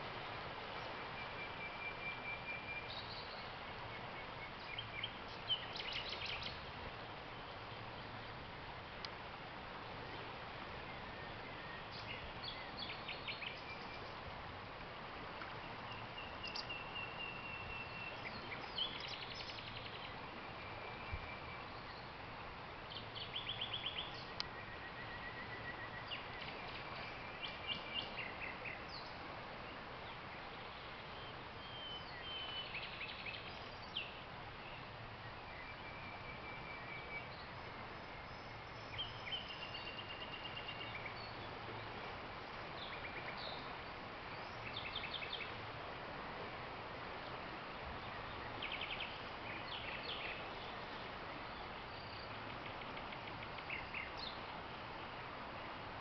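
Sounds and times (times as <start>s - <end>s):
river water rushing: 0.0s - 56.0s
nightingale singing: 0.8s - 6.6s, 10.9s - 14.2s, 15.6s - 22.2s, 22.9s - 29.2s, 30.1s - 41.5s, 48.0s - 54.6s.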